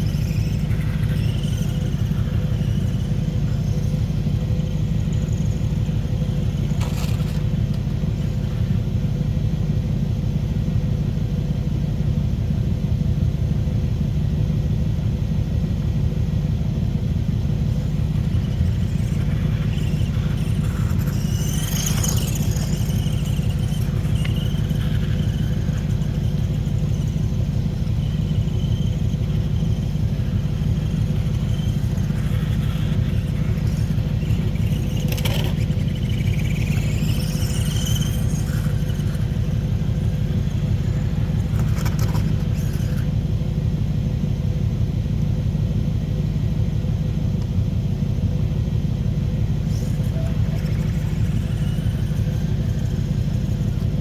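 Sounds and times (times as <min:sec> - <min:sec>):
scrapes: 0:00.0 - 0:08.6, 0:17.7 - 0:43.1, 0:49.6 - 0:54.0
electric motor humming: 0:00.0 - 0:08.8, 0:17.2 - 0:43.2, 0:49.4 - 0:54.0.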